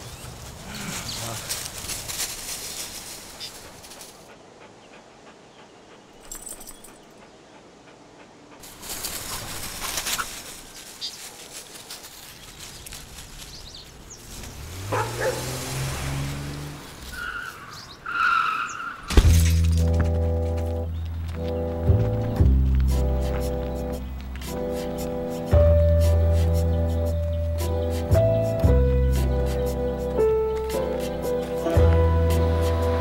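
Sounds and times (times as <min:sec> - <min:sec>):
car engine revving: 0:14.3 - 0:17.3
tires squealing: 0:14.3 - 0:19.1
low music drone: 0:19.4 - 0:33.0.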